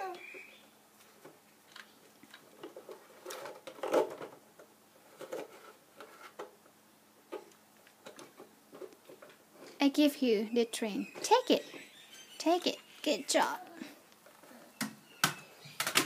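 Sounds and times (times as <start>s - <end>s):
plastic toys knocking and clicking: 1.7s - 6.6s, 14.8s - 16.0s.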